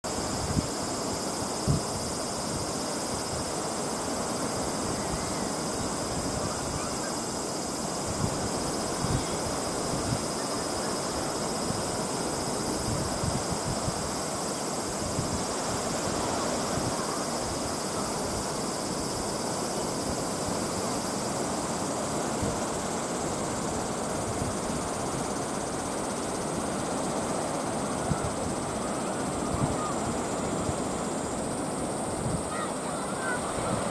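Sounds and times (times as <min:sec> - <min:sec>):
rough sea rushing: 0:00.1 - 0:33.9
wind buffeting microphone: 0:08.0 - 0:10.4.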